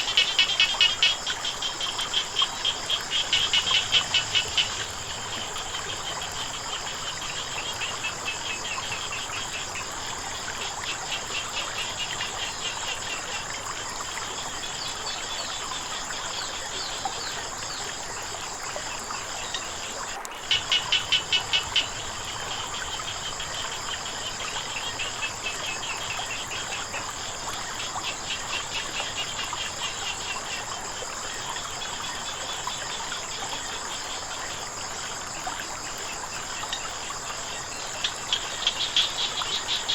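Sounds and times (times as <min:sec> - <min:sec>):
frog calling loudly: 0:00.0 - 0:05.4, 0:20.4 - 0:23.6
frogs calling in pulses: 0:00.0 - 0:39.9.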